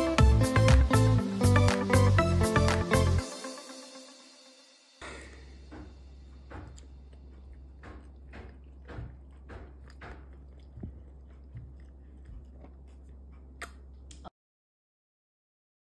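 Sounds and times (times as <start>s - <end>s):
child chewing: 5.0s - 14.3s.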